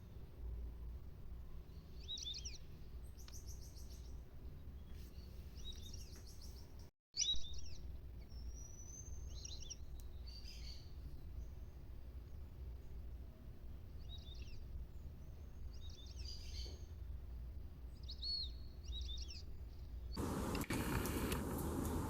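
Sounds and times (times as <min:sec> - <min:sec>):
birds chirping: 0:20.2 - 0:22.0
low background rumble: 0:20.2 - 0:22.0.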